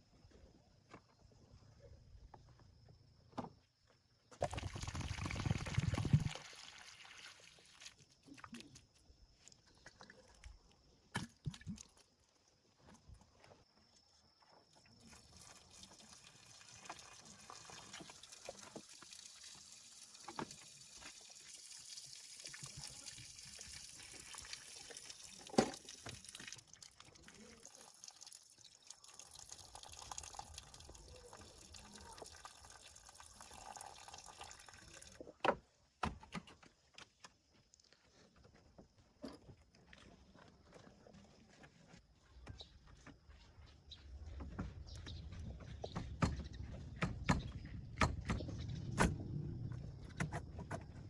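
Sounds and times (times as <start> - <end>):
running water hissing: 15.0 - 35.1.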